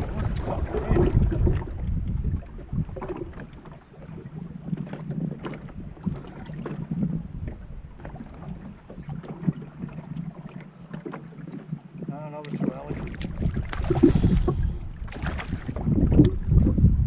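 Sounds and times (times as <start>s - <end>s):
wind buffeting microphone: 0.0s - 17.0s
low rumble: 12.9s - 17.0s.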